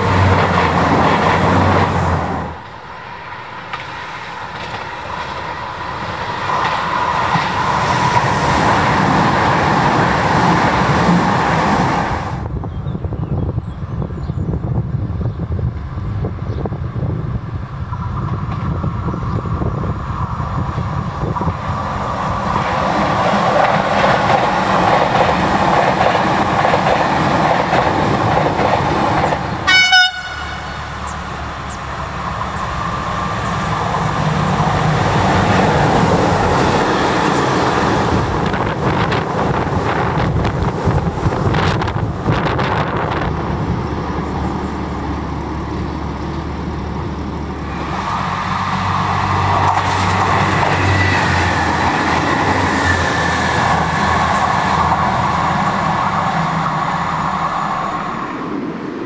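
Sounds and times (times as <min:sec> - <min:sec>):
wheels clacking over rail joints: 0:00.0 - 0:12.1, 0:20.6 - 0:57.8
diesel locomotive rumbling past: 0:00.0 - 0:59.0
passenger train rumbling by: 0:00.0 - 0:59.0
train horn toot: 0:29.6 - 0:31.2.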